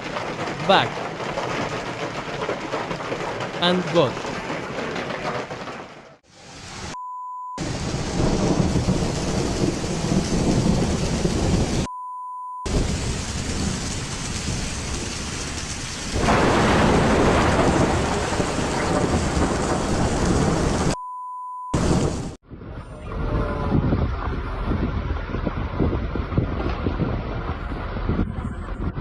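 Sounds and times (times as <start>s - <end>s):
hail drumming on car: 0.0s - 6.2s, 12.7s - 21.0s
short steady beep tone: 7.0s - 7.6s, 11.9s - 12.7s, 21.0s - 21.8s.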